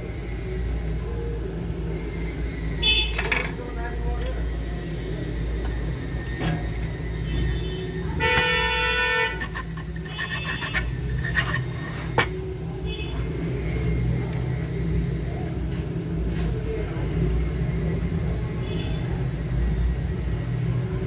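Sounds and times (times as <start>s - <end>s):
horn-like tone: 7.2s - 10.8s.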